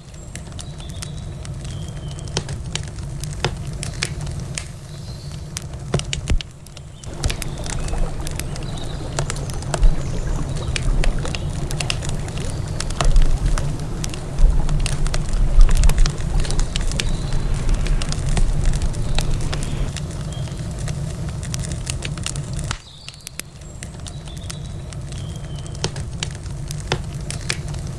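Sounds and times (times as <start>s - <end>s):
wood fire crackling and popping: 7.1s - 20.0s.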